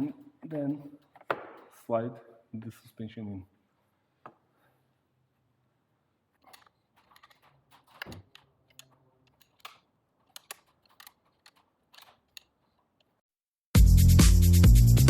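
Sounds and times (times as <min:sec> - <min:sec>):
metal clicks and taps: 0:06.4 - 0:13.2.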